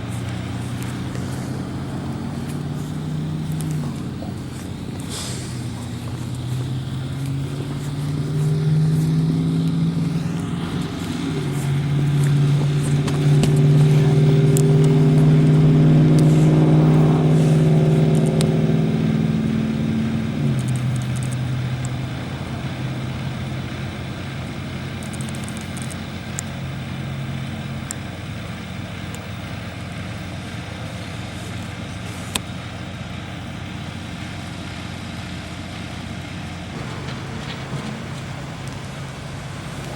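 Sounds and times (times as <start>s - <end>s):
heavy vehicle engine running: 0.0s - 39.9s
traffic hum: 0.0s - 39.9s
small clicks: 20.5s - 22.0s, 25.0s - 26.6s.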